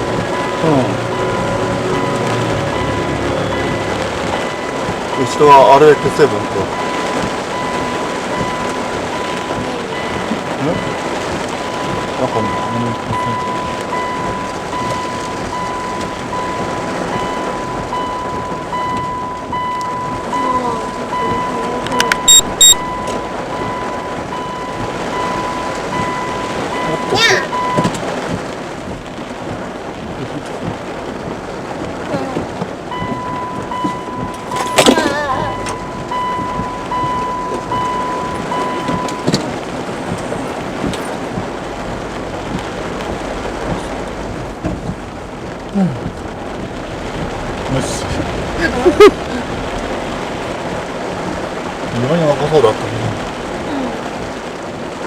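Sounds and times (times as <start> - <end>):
steady electronic tone: 0.0 - 9.4
faint higher beep: 0.0 - 28.0, 32.9 - 39.6
heavy rain on car: 0.0 - 55.0.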